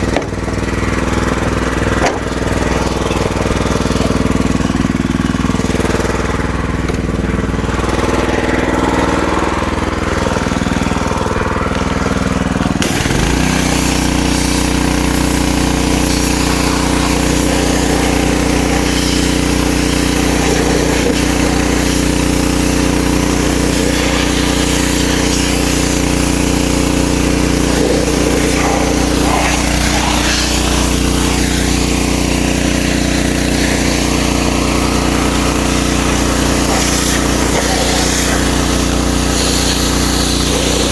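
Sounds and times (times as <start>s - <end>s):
pressure washer engine running: 0.0s - 40.9s
high-pressure water spray hiss: 12.8s - 40.9s.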